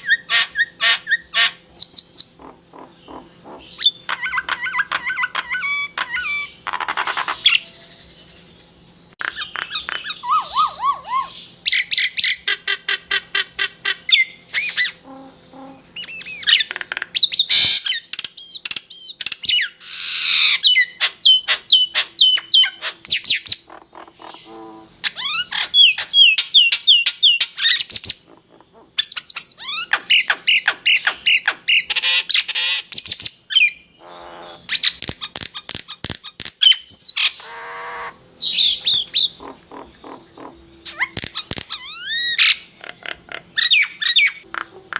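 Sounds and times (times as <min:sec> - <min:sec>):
songbirds singing: 0:00.0 - 0:44.9.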